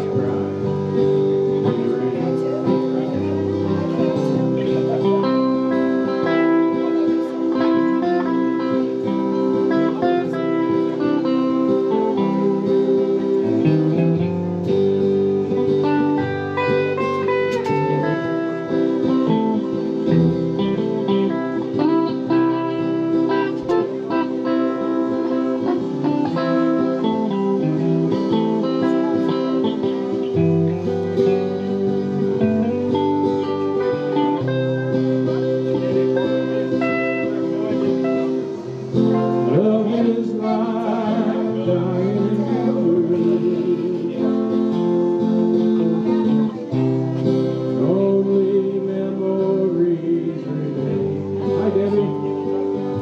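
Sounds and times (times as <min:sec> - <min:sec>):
guitar melody: 0:00.0 - 0:53.0
bass line: 0:25.5 - 0:45.2.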